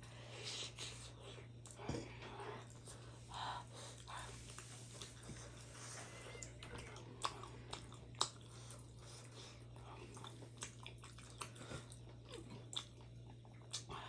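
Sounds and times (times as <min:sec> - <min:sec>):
person chewing: 0:03.9 - 0:14.0.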